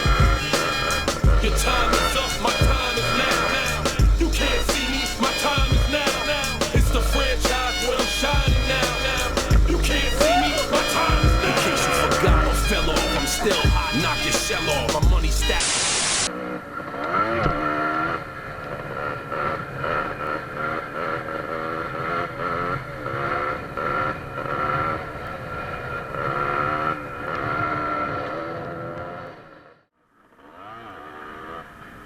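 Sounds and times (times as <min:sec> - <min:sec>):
two-stroke motorcycle engine revving: 0:00.0 - 0:15.6, 0:16.3 - 0:32.0
hip hop music: 0:00.0 - 0:15.8
burst of hiss: 0:00.0 - 0:16.3.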